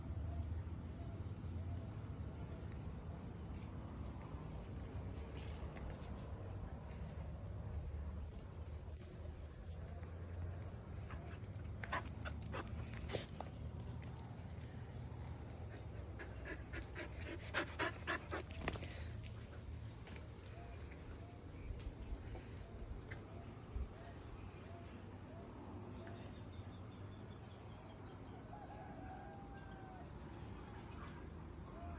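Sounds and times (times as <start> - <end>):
insect drone: 0.0 - 31.9.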